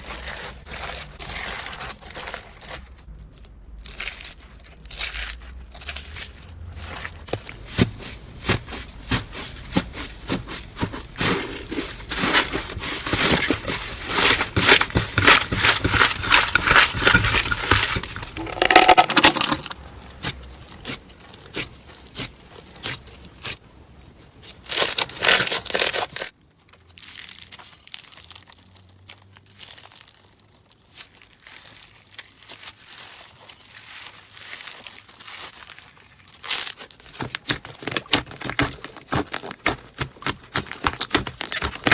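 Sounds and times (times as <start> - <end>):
slime crackling and popping: 24.5 - 41.9.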